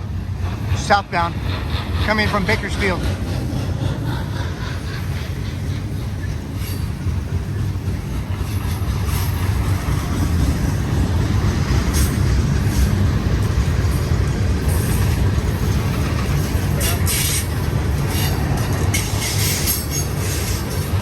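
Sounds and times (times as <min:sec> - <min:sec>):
train wheels rumbling on rail: 0:00.0 - 0:21.0
wheel squeals: 0:16.8 - 0:20.8.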